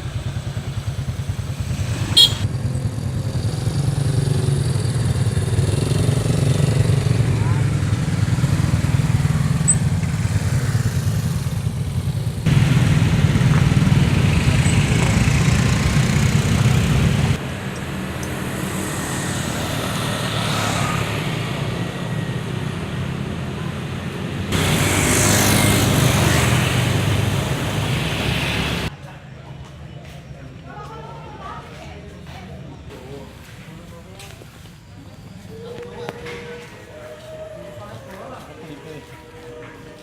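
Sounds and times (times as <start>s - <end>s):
vehicle engine and road noise: 0.0s - 30.6s.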